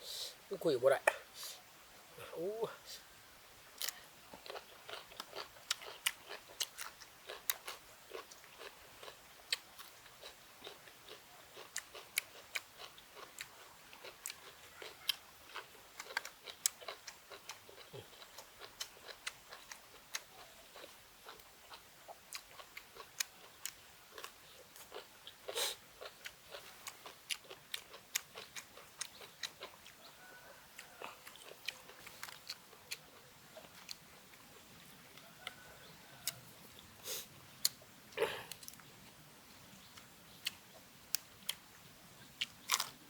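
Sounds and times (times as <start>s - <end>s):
person chewing and biting food: 3.8s - 35.6s, 42.4s - 43.0s.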